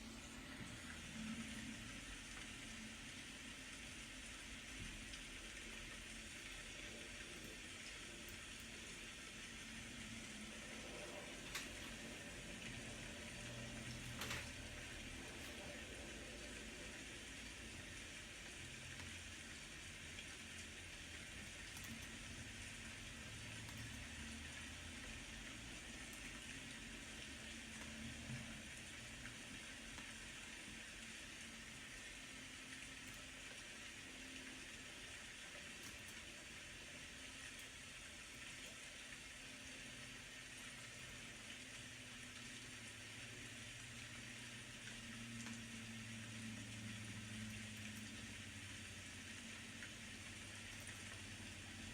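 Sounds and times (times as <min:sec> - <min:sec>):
steady rain hiss: 0:00.0 - 0:51.9.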